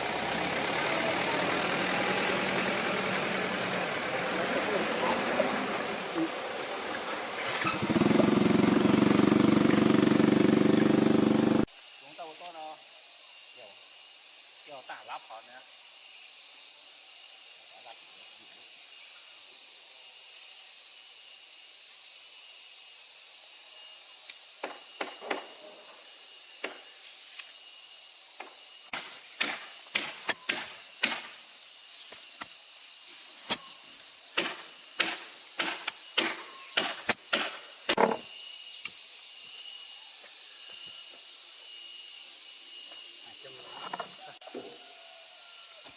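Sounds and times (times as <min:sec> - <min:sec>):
steady high hiss: 0:00.0 - 0:08.7, 0:11.6 - 0:45.9
tool striking wood: 0:24.6 - 0:25.5, 0:28.4 - 0:31.4, 0:34.4 - 0:38.3.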